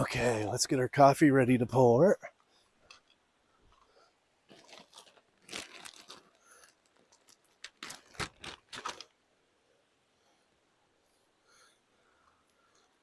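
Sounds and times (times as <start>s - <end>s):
crinkling and crunching handling noises: 2.4s - 9.2s.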